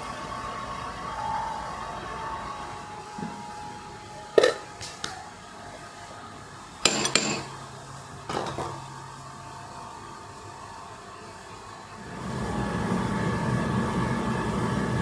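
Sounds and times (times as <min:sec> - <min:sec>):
steady machine hum: 0:00.0 - 0:15.0
metallic clanks and clinks: 0:06.8 - 0:07.6.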